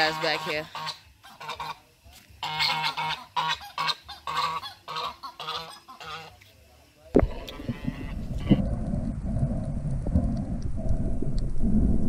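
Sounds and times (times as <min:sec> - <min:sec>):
geese honking: 0:00.0 - 0:01.8, 0:02.4 - 0:06.4, 0:07.3 - 0:08.6.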